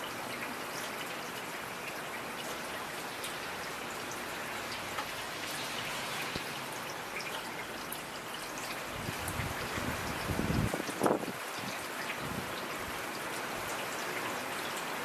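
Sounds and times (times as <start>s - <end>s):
steady rainfall hissing: 0.0s - 15.0s.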